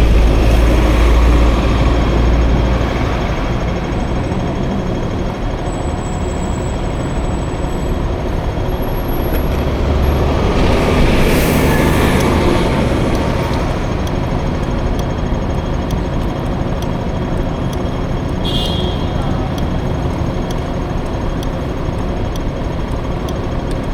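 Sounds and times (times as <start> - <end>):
large vehicle passing: 0.0 - 18.4
scooter engine: 0.0 - 23.9.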